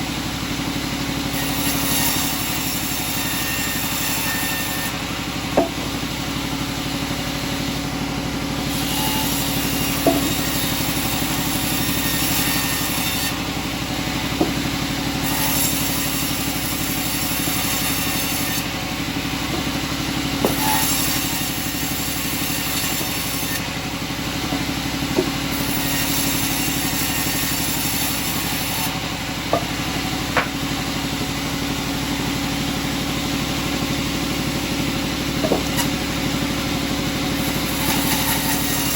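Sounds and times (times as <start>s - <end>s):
sawmill machinery humming: 0.0s - 38.9s
sharp knocks: 5.6s - 6.0s, 10.0s - 10.6s, 14.4s - 14.8s, 19.5s - 21.1s, 25.1s - 25.7s, 29.5s - 30.6s, 35.4s - 35.8s.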